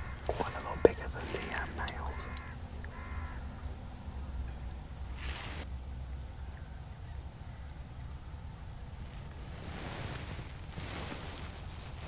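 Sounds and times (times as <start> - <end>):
soft rush of noise: 0.0 - 12.0
steady low rumble: 0.0 - 12.0.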